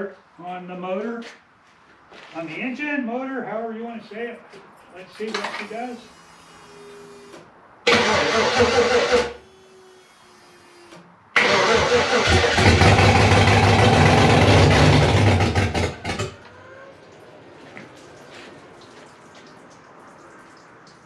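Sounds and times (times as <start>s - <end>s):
starter motor cranking: 7.9s - 9.4s, 11.4s - 16.4s
engine running and stumbling: 11.4s - 16.6s.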